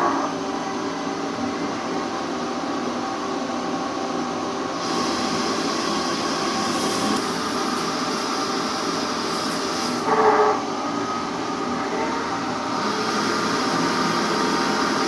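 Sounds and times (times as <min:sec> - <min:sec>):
machine tool humming: 0:04.8 - 0:15.0.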